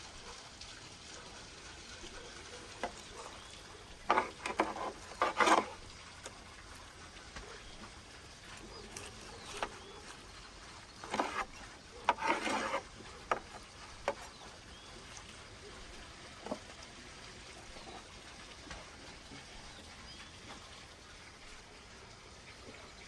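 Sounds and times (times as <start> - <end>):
faint outdoor background: 0.0 - 23.0
knife scraping crunch: 2.6 - 5.9, 8.4 - 10.3, 11.0 - 14.4.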